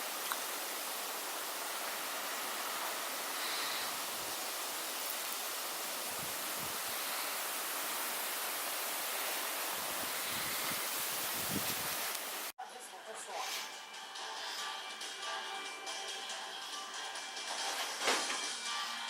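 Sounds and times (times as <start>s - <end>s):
blizzard wind hissing: 0.0s - 12.6s
wind buffeting microphone: 6.0s - 7.0s, 9.6s - 12.1s.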